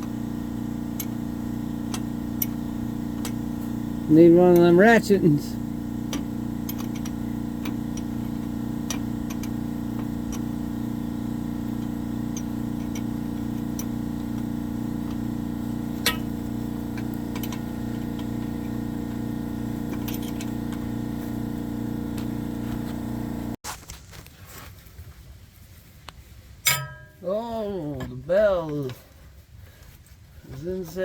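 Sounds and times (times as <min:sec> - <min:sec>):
air compressor humming: 0:00.0 - 0:23.6.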